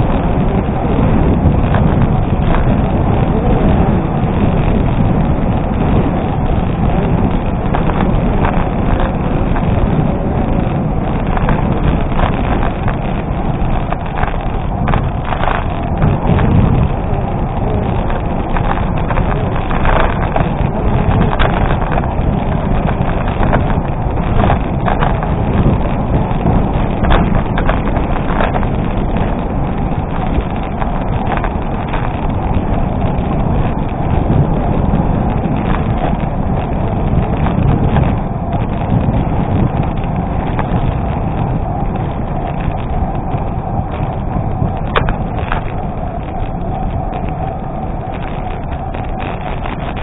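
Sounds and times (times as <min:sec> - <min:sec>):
bike clattering over bumps: 0:00.0 - 0:50.0
wind on microphone: 0:00.0 - 0:50.0
bike tyres crunching on gravel: 0:04.0 - 0:50.0.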